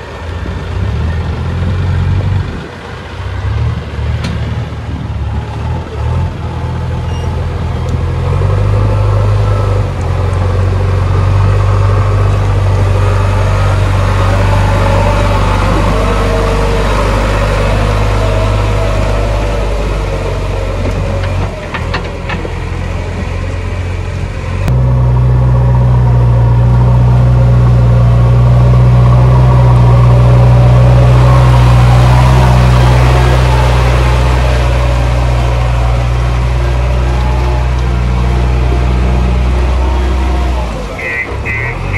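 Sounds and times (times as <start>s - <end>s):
heavy diesel machinery engine: 0.0s - 41.9s.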